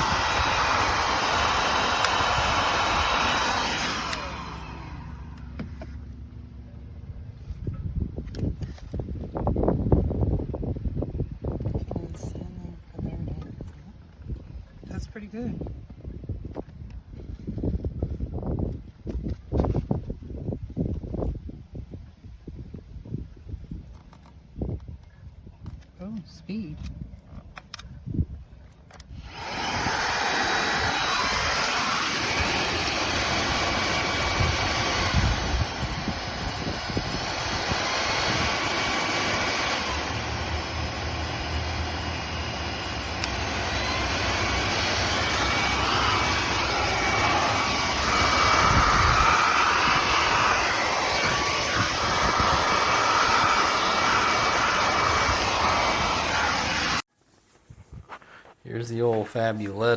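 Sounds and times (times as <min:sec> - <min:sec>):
vacuum cleaner running: 0:00.0 - 0:06.1, 0:29.1 - 0:57.1.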